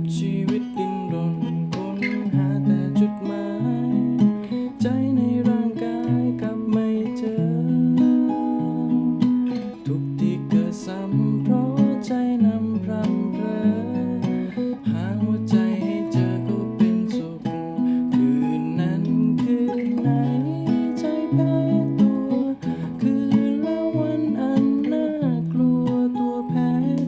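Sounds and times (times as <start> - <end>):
acoustic guitar strumming: 0.0 - 27.0.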